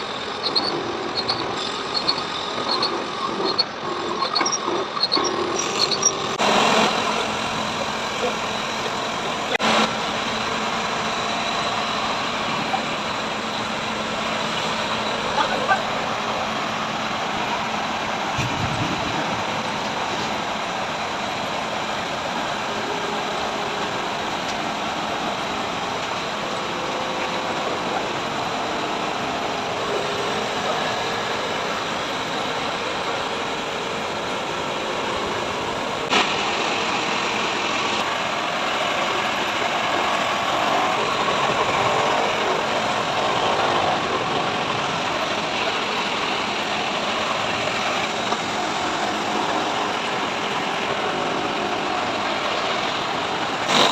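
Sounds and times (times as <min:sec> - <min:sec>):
heavy machinery running: 0:00.0 - 0:53.9.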